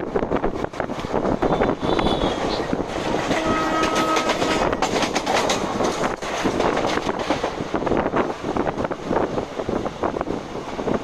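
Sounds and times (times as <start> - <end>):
train rumble and wind: 0.0 - 11.0
wheels clattering over rail joints: 0.5 - 8.1
train horn: 1.4 - 5.1.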